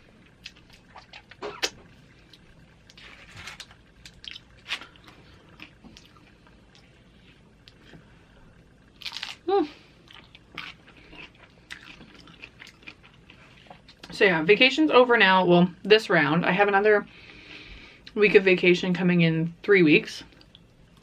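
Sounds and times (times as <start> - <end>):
chewing and crunching chips: 0.1 - 8.0, 8.9 - 14.2.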